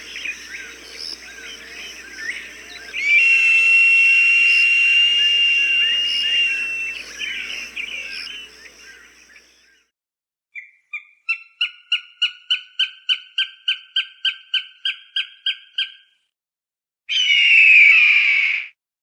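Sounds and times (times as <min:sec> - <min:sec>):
falcon cries: 0:00.1 - 0:08.9
falcon harsh scream: 0:02.9 - 0:08.5, 0:17.1 - 0:18.6.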